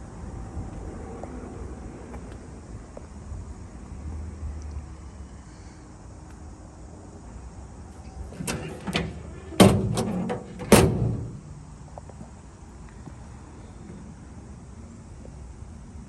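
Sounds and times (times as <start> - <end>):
door latch clicks: 8.4 - 11.4
car door clunks: 8.4 - 11.5.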